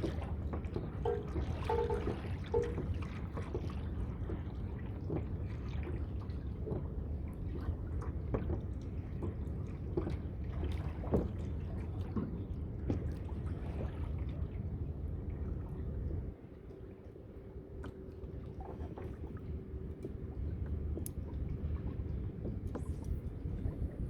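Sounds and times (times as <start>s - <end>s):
water splashing against kayak hull: 0.6s - 4.4s.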